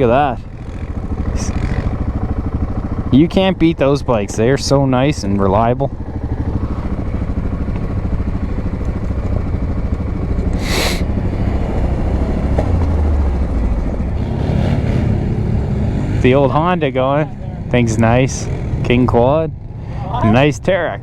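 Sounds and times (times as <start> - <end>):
atv engines running: 0.0 - 21.0
brief hiss: 10.6 - 11.0.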